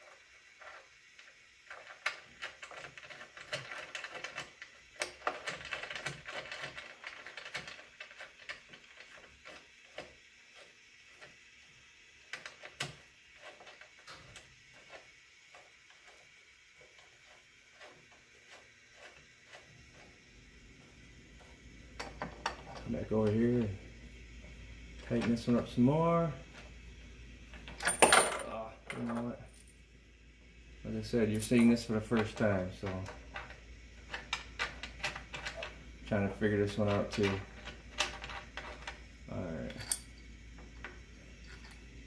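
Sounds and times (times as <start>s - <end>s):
scraping and rattling: 1.6s - 10.7s.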